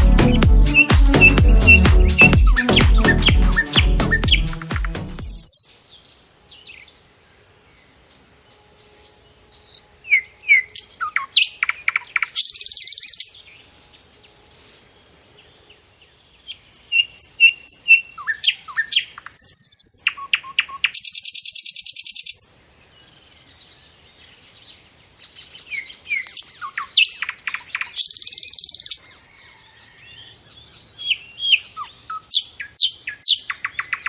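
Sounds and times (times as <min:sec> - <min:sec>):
songbird chirps and buzzy trill: 0:00.0 - 0:34.0.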